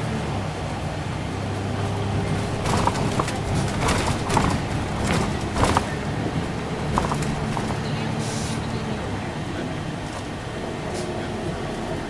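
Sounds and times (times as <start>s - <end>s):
bus engine humming: 0.0s - 12.0s
cabin rattling clicks and squeaks: 2.5s - 6.0s.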